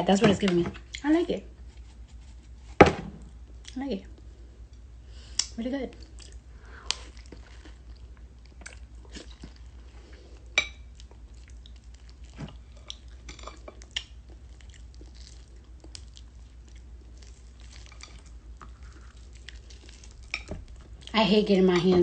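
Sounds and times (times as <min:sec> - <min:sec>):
person chewing mango: 0:05.4 - 0:21.1.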